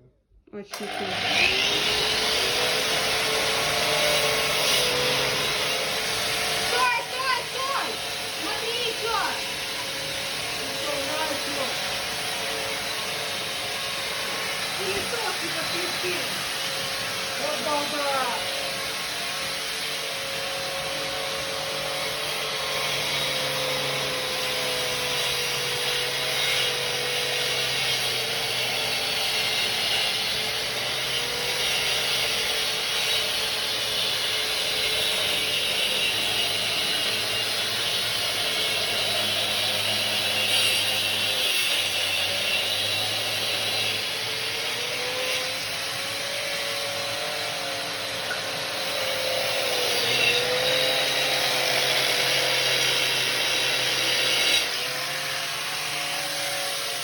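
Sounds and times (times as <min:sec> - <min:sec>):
vacuum extractor running: 0:00.7 - 0:19.5
power tool grinding into wall: 0:00.7 - 0:57.0.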